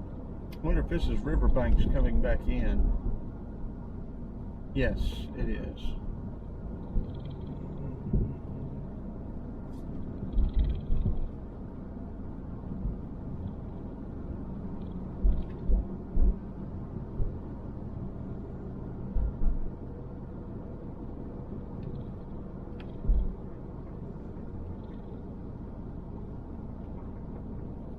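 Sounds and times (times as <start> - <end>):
car interior driving rumble: 0.0 - 27.9
short low thumps: 15.2 - 17.4, 19.1 - 19.8.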